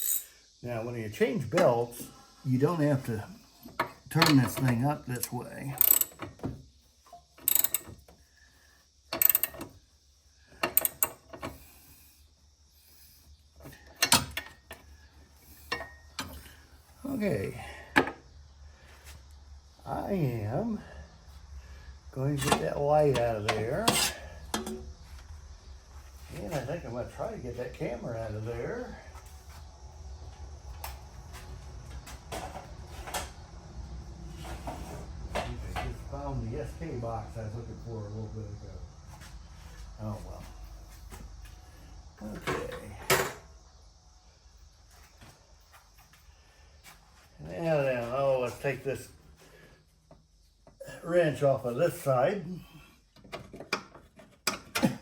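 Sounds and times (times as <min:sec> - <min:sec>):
metal tools clanking: 0:00.0 - 0:00.3, 0:03.7 - 0:06.3, 0:15.6 - 0:16.6, 0:22.3 - 0:24.8.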